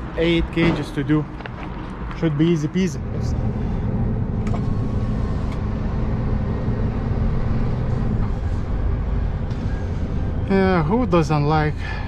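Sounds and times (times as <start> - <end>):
road noise rumble: 0.0 - 12.0
truck diesel engine hum: 0.0 - 12.0.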